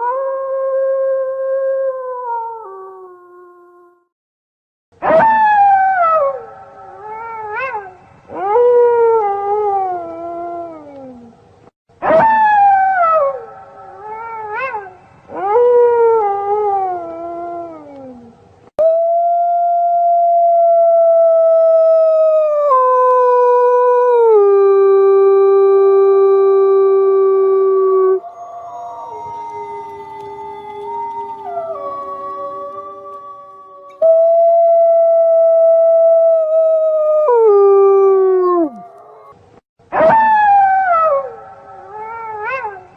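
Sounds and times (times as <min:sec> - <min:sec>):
wolf howling: 0:12.0 - 0:42.9.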